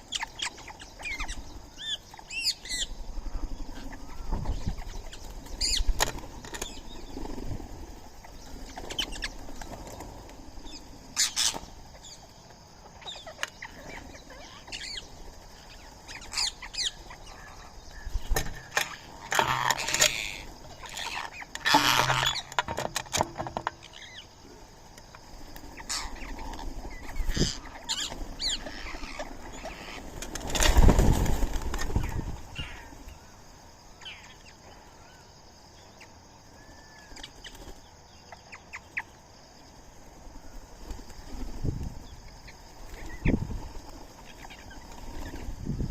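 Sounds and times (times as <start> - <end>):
birds chirping: 0.0 - 45.9
wings flapping and rustling: 3.6 - 17.4, 25.1 - 33.2, 37.2 - 38.0, 40.2 - 45.9.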